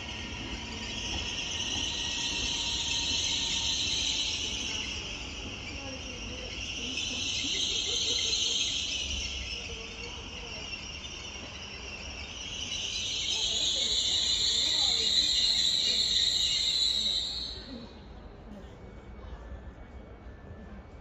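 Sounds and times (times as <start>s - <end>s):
train low rumble: 0.0s - 21.0s.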